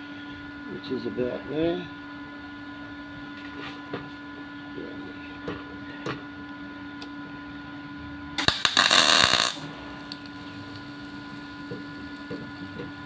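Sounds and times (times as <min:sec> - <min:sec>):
steady low hum: 0:00.0 - 0:13.0
welding arc crackling: 0:08.4 - 0:13.0.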